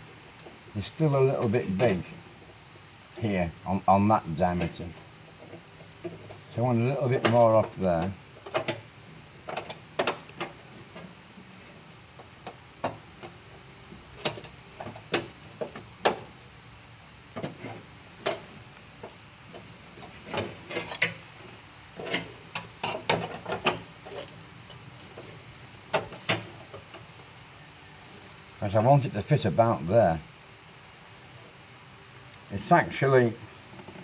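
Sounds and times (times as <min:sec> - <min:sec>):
metal clanking on metal: 0:07.1 - 0:08.8, 0:22.0 - 0:24.8.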